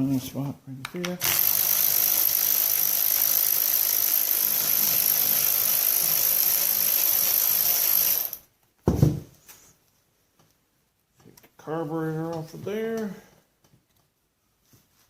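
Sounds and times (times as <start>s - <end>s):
power driver running: 1.2s - 8.4s
knock: 8.8s - 9.3s.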